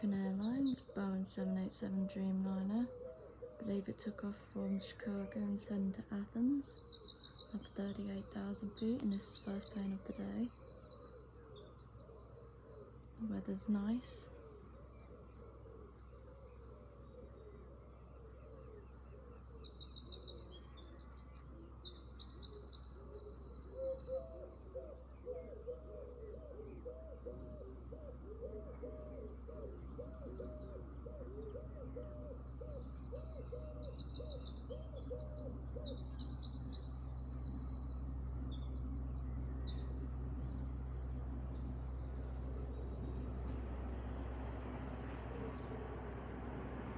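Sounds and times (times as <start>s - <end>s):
songbird trilling: 0.0s - 46.7s
lower repeated bird call: 6.6s - 46.9s
steady low rumble: 27.8s - 46.9s.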